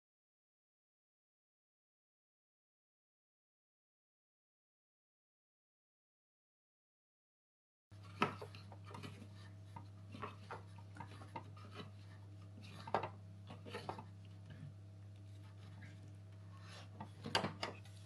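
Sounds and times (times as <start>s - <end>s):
steady low hum: 7.9s - 18.0s.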